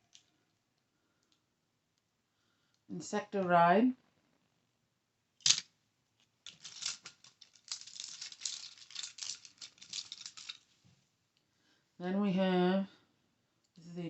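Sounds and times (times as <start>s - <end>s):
plastic crinkling: 6.4s - 10.9s.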